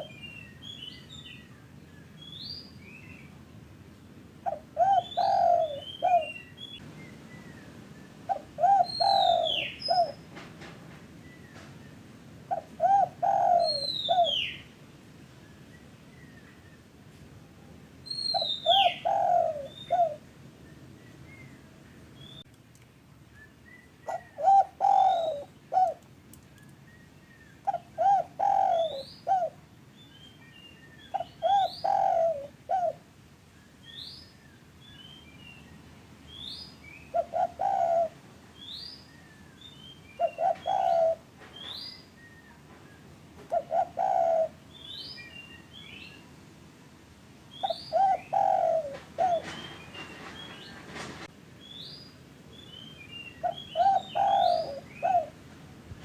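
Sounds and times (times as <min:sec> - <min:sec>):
dove cooing: 0:04.4 - 0:06.4, 0:08.3 - 0:10.2, 0:12.5 - 0:14.6, 0:18.3 - 0:20.2, 0:24.0 - 0:26.0, 0:27.6 - 0:29.6, 0:31.1 - 0:33.0, 0:37.1 - 0:38.2, 0:40.2 - 0:41.7, 0:43.4 - 0:44.6, 0:47.6 - 0:50.2, 0:53.4 - 0:55.4
small birds chirping: 0:04.5 - 0:10.3, 0:11.2 - 0:14.8, 0:18.1 - 0:22.6, 0:23.2 - 0:33.0, 0:33.6 - 0:46.4, 0:47.5 - 0:50.8, 0:51.6 - 0:55.4.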